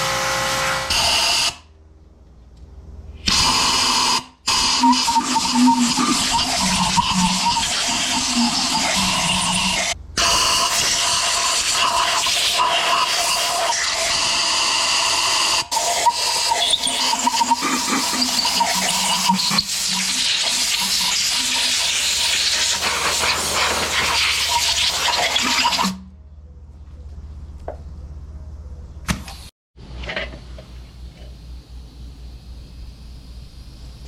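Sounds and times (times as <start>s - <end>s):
water jet spraying on engine: 15.7s - 26.0s.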